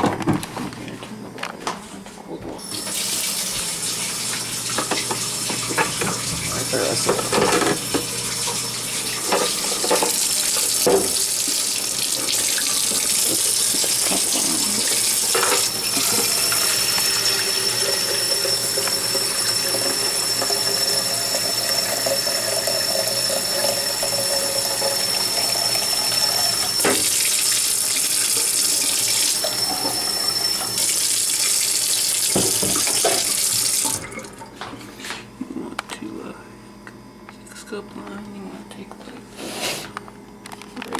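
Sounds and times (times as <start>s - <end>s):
water running from a tap: 2.6s - 34.5s.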